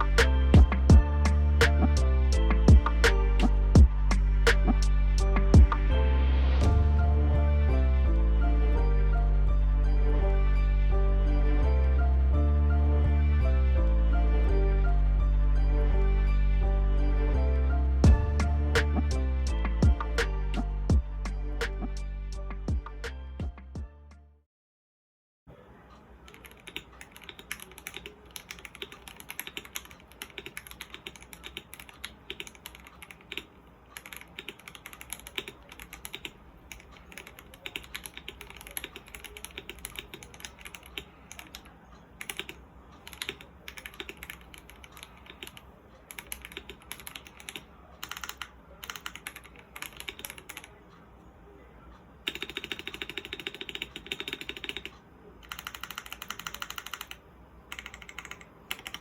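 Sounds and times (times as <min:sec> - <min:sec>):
mechanical keyboard typing: 0:26.2 - 0:50.8, 0:52.2 - 0:59.0.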